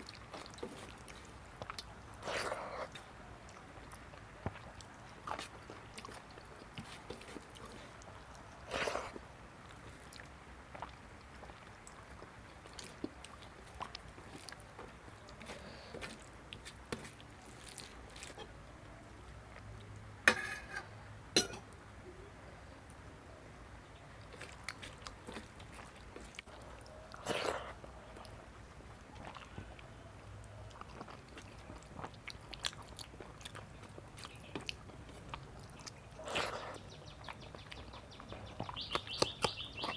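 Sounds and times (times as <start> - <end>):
person chewing: 0.0 - 18.6, 24.2 - 39.9.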